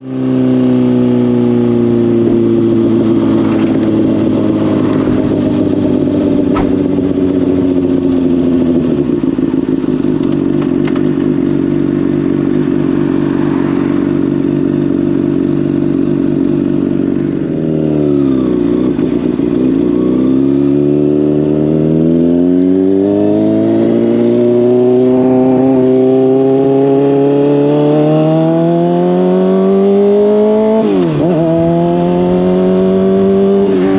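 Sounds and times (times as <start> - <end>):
motorcycle engine running: 0.0 - 33.9
sharp clicks: 3.8 - 4.0.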